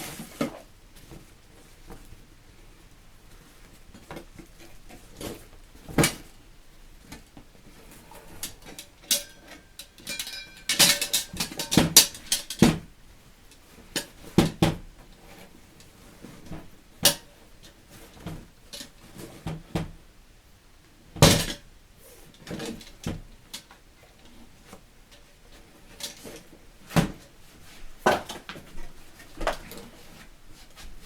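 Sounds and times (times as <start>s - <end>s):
metal parts clinking: 10.0s - 12.6s.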